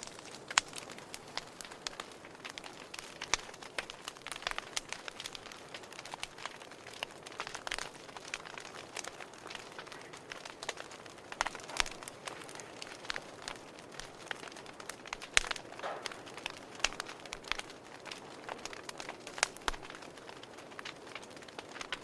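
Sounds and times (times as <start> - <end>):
fire crackling and popping: 0.0 - 22.0
soft steady hiss: 0.0 - 22.0.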